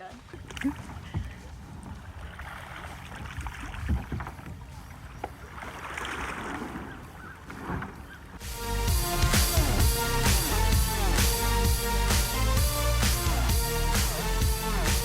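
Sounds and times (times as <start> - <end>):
paddle splashing in water: 0.0 - 8.4
wind rumble on microphone: 0.0 - 8.4.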